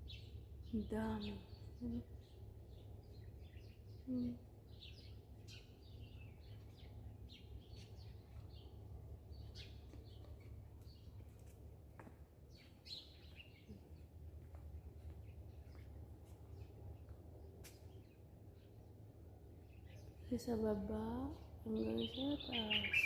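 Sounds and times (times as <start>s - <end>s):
steady low rumble: 0.0s - 12.6s
small birds chirping: 0.0s - 23.0s.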